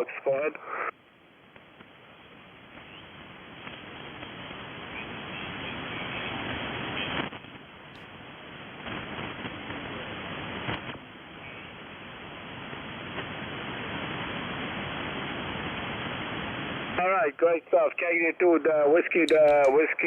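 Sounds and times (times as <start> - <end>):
shortwave radio static: 0.0 - 1.0, 17.0 - 20.0.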